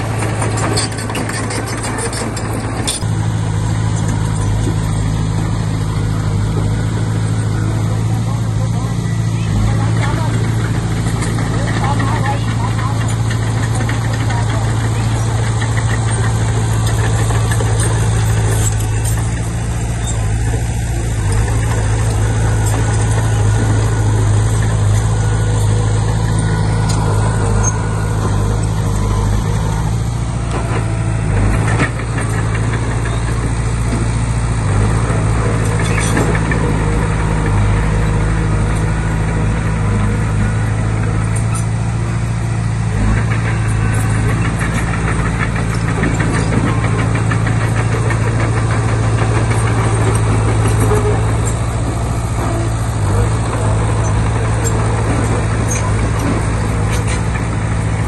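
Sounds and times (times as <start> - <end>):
bulldozer diesel engine running: 0.0 - 58.0
metal clanks: 9.8 - 38.0.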